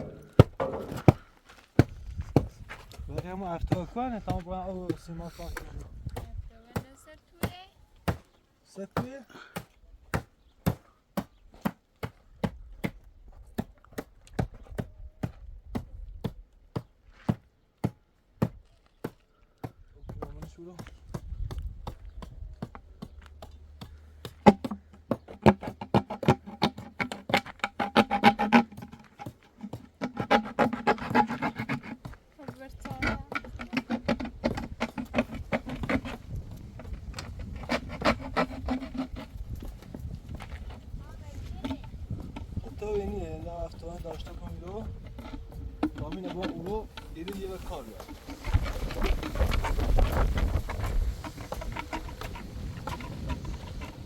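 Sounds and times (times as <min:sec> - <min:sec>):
scraping and knocking strokes: 0:23.0 - 0:54.0.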